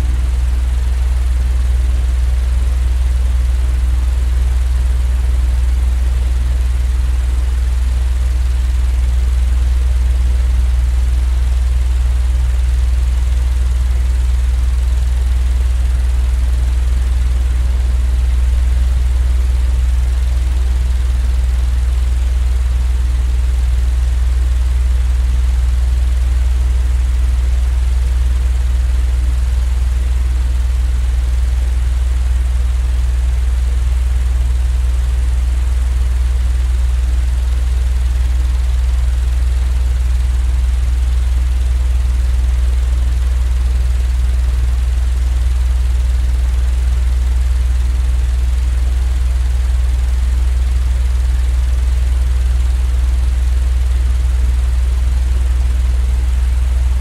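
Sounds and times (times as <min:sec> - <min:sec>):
deep rumble: 0:08.9 - 0:11.6, 0:12.2 - 0:25.2, 0:48.8 - 0:50.2, 0:56.4 - 0:57.0.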